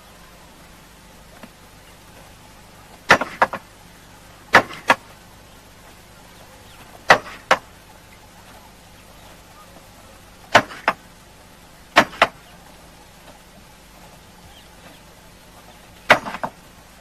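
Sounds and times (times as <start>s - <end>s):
faint steady background noise: 0.0s - 17.0s
sharp impacts in pairs: 3.0s - 3.6s, 4.5s - 5.0s, 7.0s - 7.6s, 10.5s - 11.0s, 12.0s - 12.4s, 16.1s - 16.6s.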